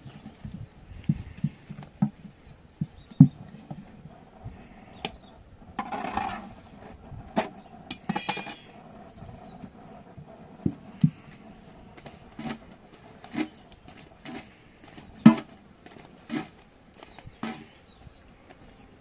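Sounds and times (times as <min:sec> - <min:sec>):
dish clinking: 0:08.1 - 0:08.9.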